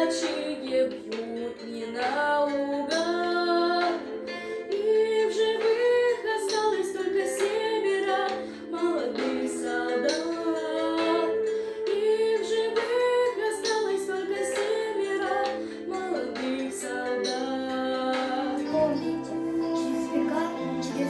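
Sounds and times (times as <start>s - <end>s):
musical backing: 0.0s - 21.0s.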